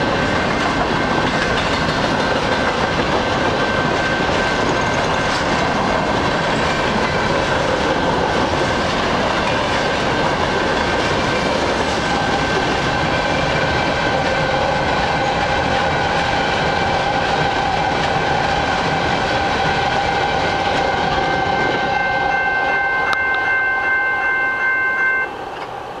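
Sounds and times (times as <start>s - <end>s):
train wheels rumbling and clattering: 0.0s - 24.3s
high ringing tones: 21.2s - 25.4s.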